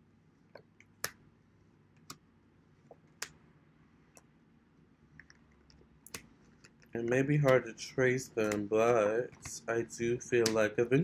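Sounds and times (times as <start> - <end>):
sharp clicks: 8.4 - 8.7.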